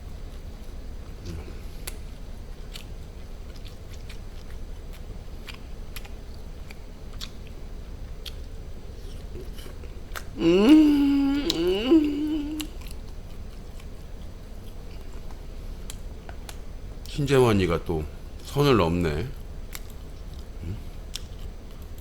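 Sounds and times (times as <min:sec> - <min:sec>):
person chewing food: 0:00.2 - 0:16.6, 0:19.7 - 0:22.0
mouth clicks and crunches: 0:01.1 - 0:17.2
person humming mmm: 0:01.2 - 0:01.6, 0:10.3 - 0:12.9.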